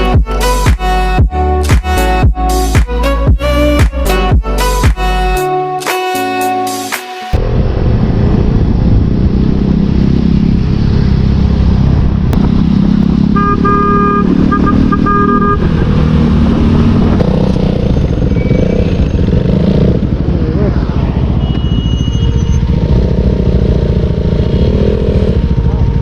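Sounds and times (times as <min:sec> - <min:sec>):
motorcycle engine and wind rumble: 0:07.4 - 0:26.0
vehicle horn honking: 0:13.3 - 0:15.8, 0:21.4 - 0:22.6.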